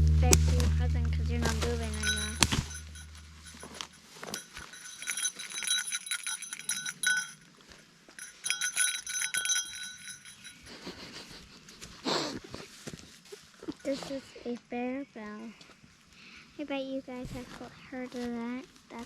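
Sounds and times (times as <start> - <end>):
bear bell jingling: 1.4 - 7.5, 8.2 - 11.3.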